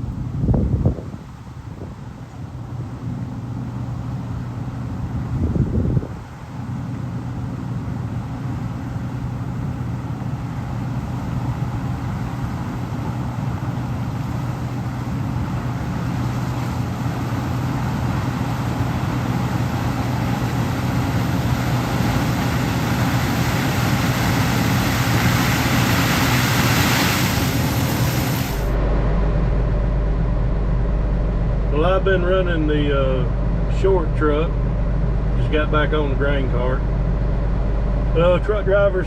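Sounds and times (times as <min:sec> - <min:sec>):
diesel engine running steadily: 0:00.0 - 0:39.0
machinery hiss: 0:13.8 - 0:28.8.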